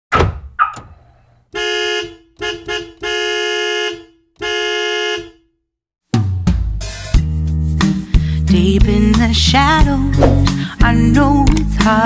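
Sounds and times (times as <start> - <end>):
sharp knocks: 0.1 - 1.0
car horn honking: 1.5 - 5.6.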